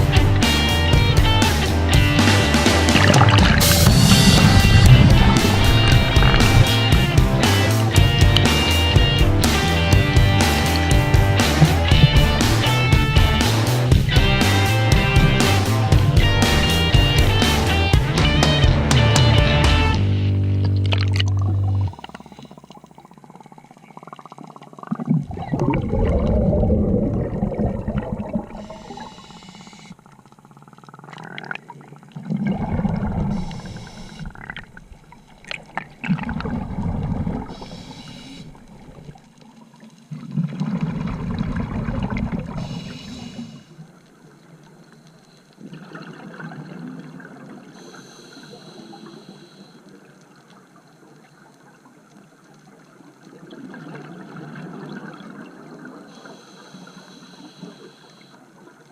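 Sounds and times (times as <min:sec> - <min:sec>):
exhaled bubbles gushing: 0:00.0 - 0:17.9, 0:20.6 - 0:43.5, 0:45.6 - 0:47.8, 0:53.2 - 0:56.1
regulator inhalation hiss: 0:28.5 - 0:30.0, 0:33.3 - 0:34.4, 0:37.5 - 0:39.0, 0:42.6 - 0:43.8, 0:47.8 - 0:49.8, 0:56.1 - 0:58.4.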